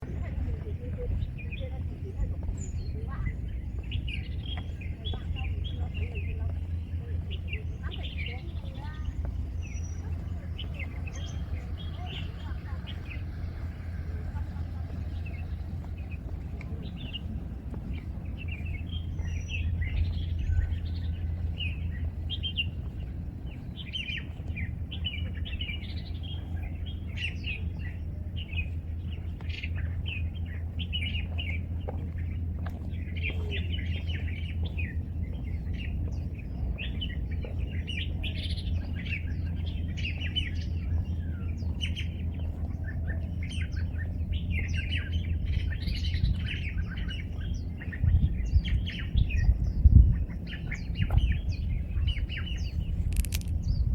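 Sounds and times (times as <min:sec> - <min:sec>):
small birds chirping: 0:00.0 - 0:53.9
steady low hum: 0:00.0 - 0:53.9.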